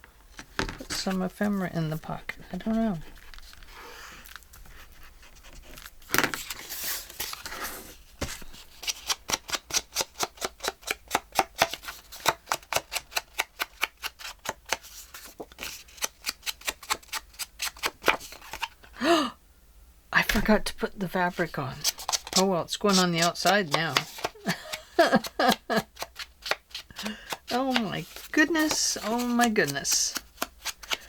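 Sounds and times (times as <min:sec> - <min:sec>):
paper rustling: 0:02.6 - 0:09.6, 0:11.7 - 0:18.8, 0:21.4 - 0:31.0.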